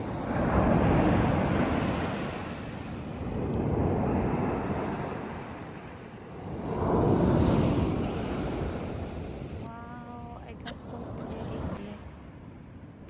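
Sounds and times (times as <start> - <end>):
ocean surf breaking on shore: 0.0 - 9.7
wind on microphone: 0.0 - 9.7.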